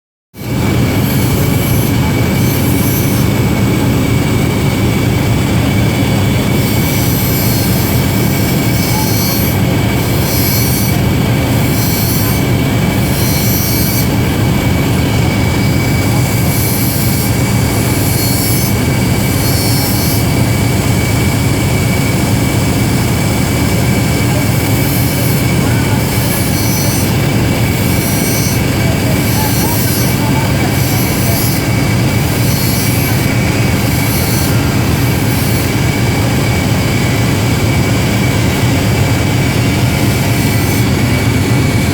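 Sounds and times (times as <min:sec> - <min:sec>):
machine hiss: 0:00.4 - 0:41.9
machine hum with high whine: 0:00.4 - 0:41.9.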